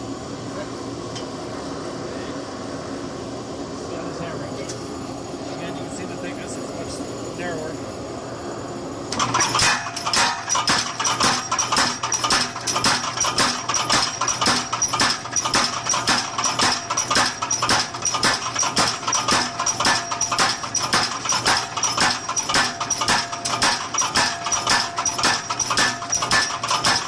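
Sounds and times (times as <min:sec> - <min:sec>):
power hammer clanging on metal: 0:09.1 - 0:27.0.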